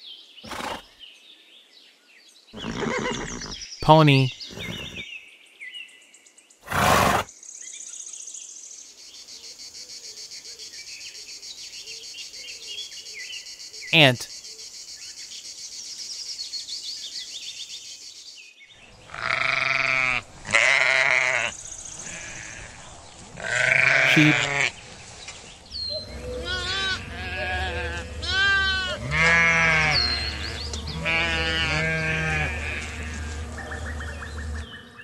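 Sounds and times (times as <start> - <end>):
sheep bleating: 19.1 - 24.8, 26.4 - 33.4.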